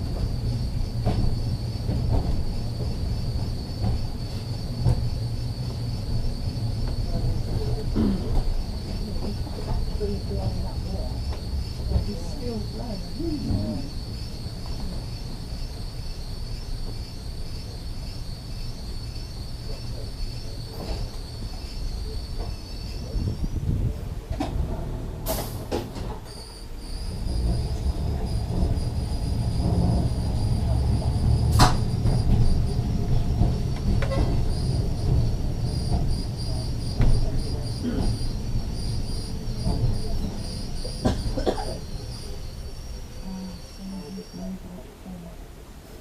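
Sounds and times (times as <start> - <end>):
tram rumbling on rails: 0.0 - 46.0
high-pitched tram whine: 23.8 - 44.6
faint high squeal: 26.2 - 32.8, 35.7 - 44.6.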